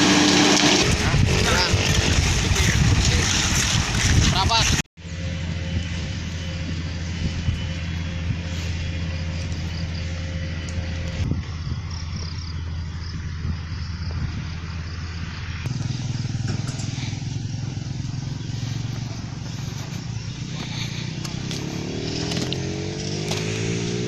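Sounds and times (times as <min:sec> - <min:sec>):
diesel truck engine revving: 0:00.0 - 0:03.9, 0:14.4 - 0:24.0.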